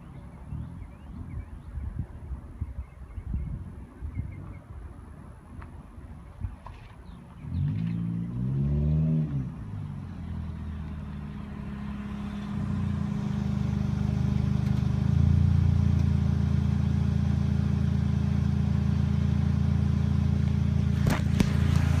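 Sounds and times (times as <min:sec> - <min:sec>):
car engine revving and droning: 0:07.3 - 0:22.0.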